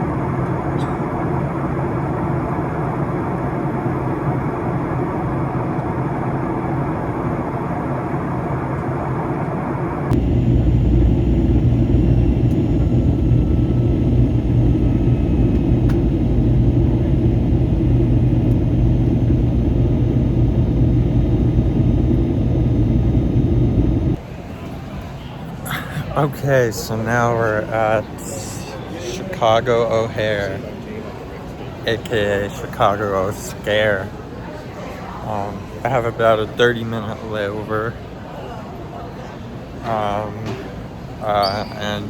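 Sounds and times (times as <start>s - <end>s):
low steady hum: 0.0s - 24.2s
vehicle rumbling: 10.1s - 24.2s.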